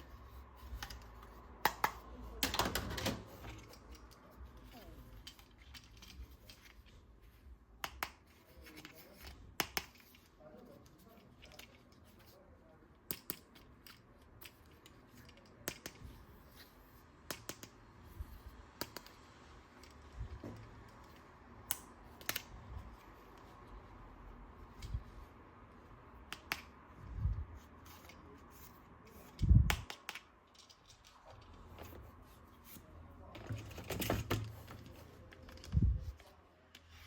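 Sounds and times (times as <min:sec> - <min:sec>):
plastic toy parts clicking: 0:13.0 - 0:16.2, 0:18.8 - 0:20.1, 0:20.9 - 0:22.6, 0:29.2 - 0:31.5.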